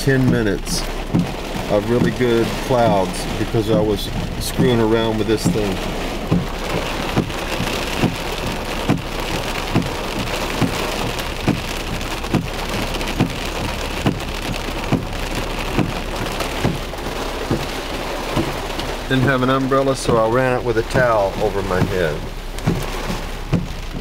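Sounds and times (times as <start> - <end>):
heavy rain pouring: 0.0 - 24.0
soft thump: 22.6 - 24.0.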